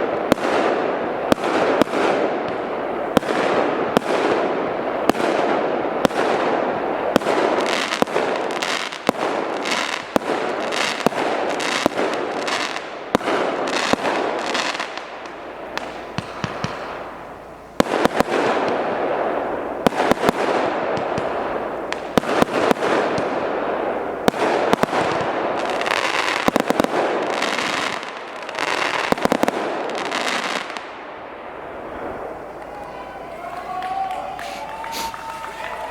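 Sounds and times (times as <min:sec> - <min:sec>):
fireworks cake firing: 0:00.0 - 0:31.0.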